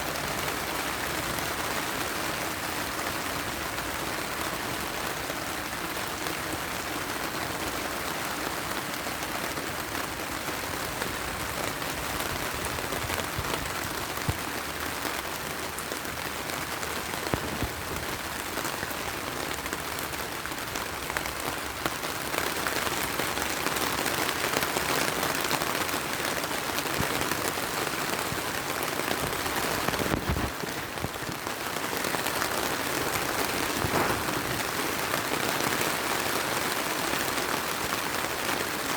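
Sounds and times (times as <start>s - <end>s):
heavy rain falling: 0.0s - 38.9s
wood fire popping: 33.7s - 35.0s.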